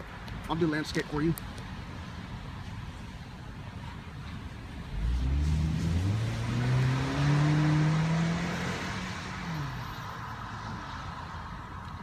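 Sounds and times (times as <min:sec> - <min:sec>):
car accelerating through gears: 0:04.9 - 0:10.0.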